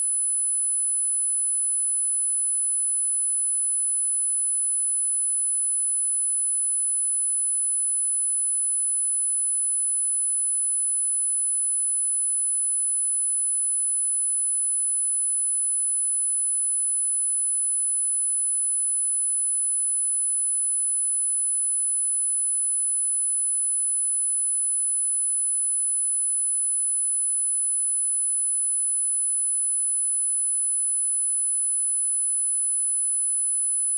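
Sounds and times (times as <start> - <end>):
high-pitched sine test tone: 27.6 - 33.9.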